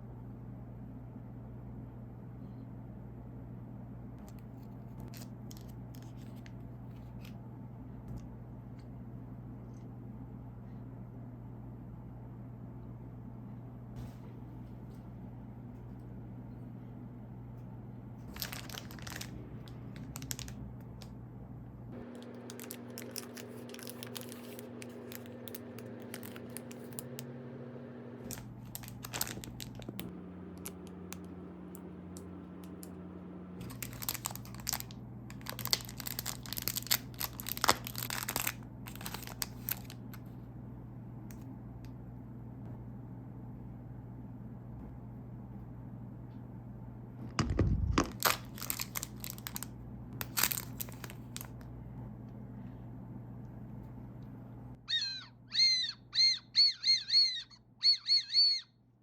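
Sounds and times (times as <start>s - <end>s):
steady low hum: 0.0s - 59.0s
plastic wrapper crinkling: 18.2s - 21.1s, 22.0s - 27.3s, 28.2s - 31.3s, 33.6s - 40.2s, 47.4s - 51.6s.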